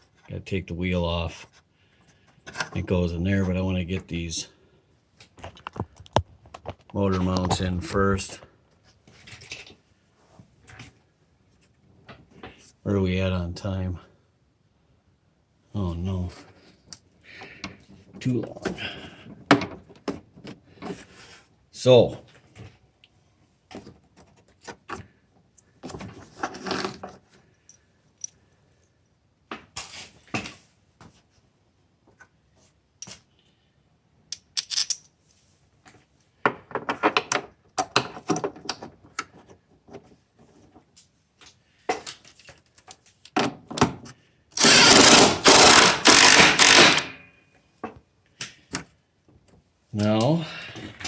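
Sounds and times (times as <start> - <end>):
tools and metal parts clinking: 27.6 - 28.4, 34.3 - 35.2.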